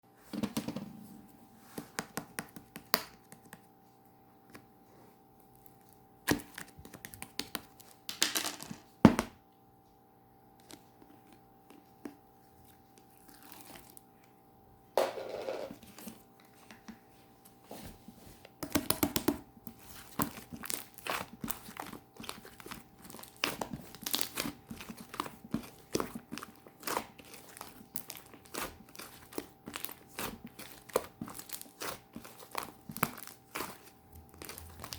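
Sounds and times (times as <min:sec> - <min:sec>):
slime crackling and snapping: 0:19.7 - 0:34.9.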